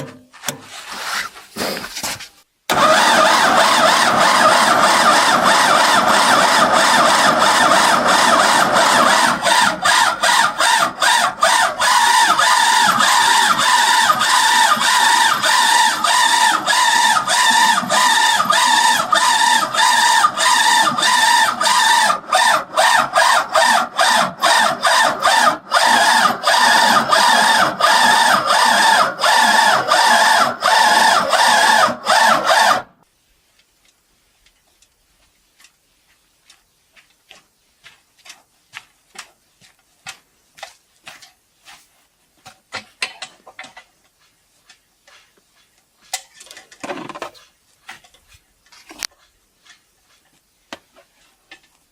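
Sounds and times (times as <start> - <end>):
faint clicks and scrapes: 33.4 - 51.9.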